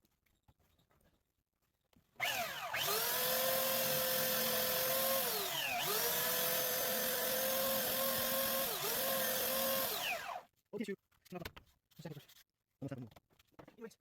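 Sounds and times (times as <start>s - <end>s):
power tool whining: 2.2s - 10.5s.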